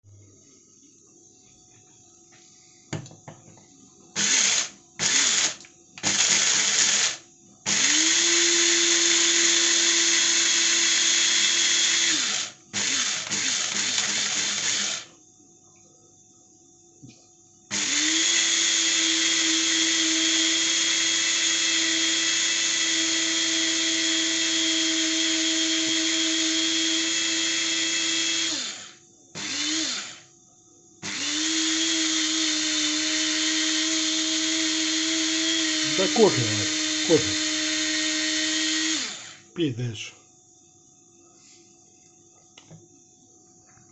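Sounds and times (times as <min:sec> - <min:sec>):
electric coffee grinder whirring: 0:04.2 - 0:15.1, 0:17.7 - 0:30.3, 0:31.0 - 0:39.5.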